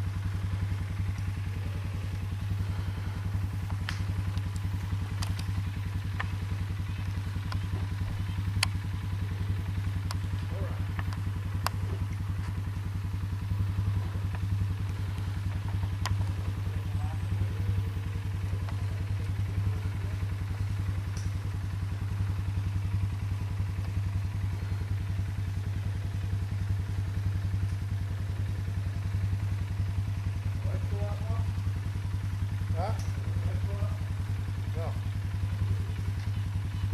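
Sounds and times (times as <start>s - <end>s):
engine idling: 0.0s - 36.9s
light clicks: 3.6s - 6.4s, 21.1s - 21.3s.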